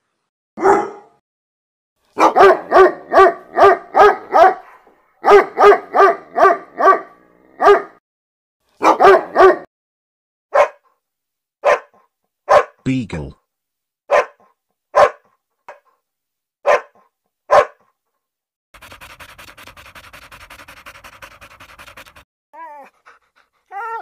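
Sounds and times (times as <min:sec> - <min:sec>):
dog barking: 0:00.6 - 0:01.2, 0:02.2 - 0:08.0, 0:08.8 - 0:09.7, 0:10.5 - 0:10.9, 0:11.6 - 0:12.8, 0:14.1 - 0:15.4, 0:16.6 - 0:17.9.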